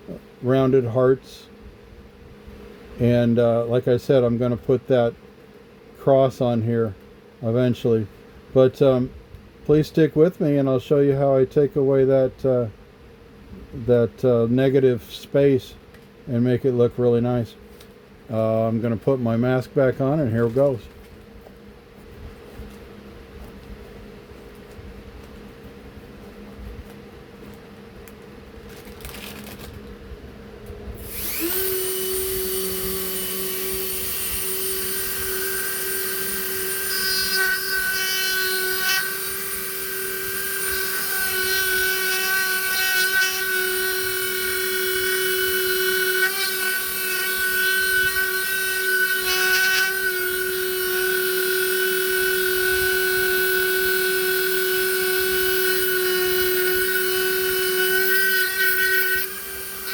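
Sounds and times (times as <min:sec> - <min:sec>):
bit grinding wood: 0:31.0 - 0:59.9
rotary tool whining: 0:31.0 - 0:59.9.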